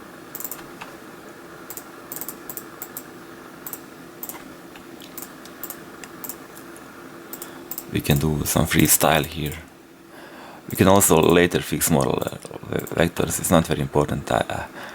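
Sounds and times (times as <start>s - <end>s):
steady low hum: 0.0s - 14.9s
mouse and keyboard clicking: 0.3s - 0.9s, 1.7s - 6.7s, 7.3s - 8.2s, 12.0s - 13.0s.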